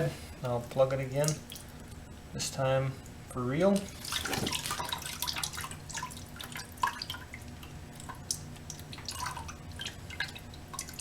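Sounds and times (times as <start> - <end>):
coolant dripping onto floor: 3.0 - 11.0.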